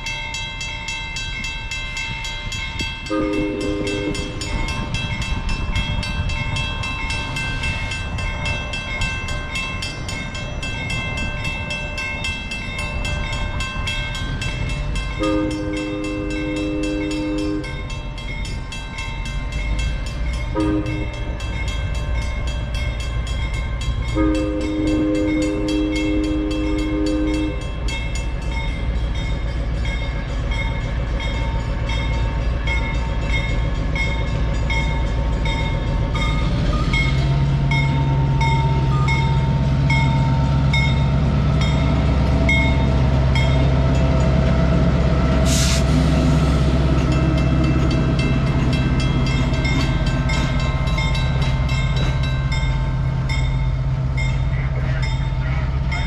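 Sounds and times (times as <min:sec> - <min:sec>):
crossing signal bell dinging: 0:00.0 - 0:45.4, 0:46.1 - 0:56.0
train coaches rolling by: 0:00.0 - 0:56.0
train horn chord: 0:03.0 - 0:04.6, 0:15.2 - 0:17.9, 0:20.5 - 0:21.3, 0:24.1 - 0:27.8
short air hiss: 0:45.5 - 0:46.0.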